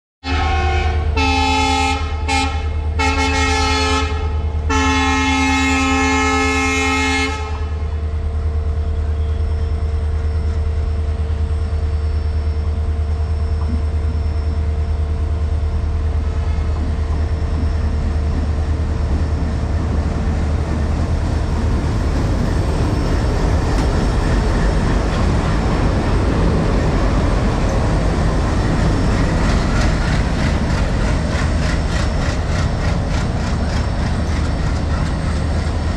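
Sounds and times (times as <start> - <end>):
locomotive horn blasts: 0.2 - 7.8
train rumbling: 0.2 - 35.9.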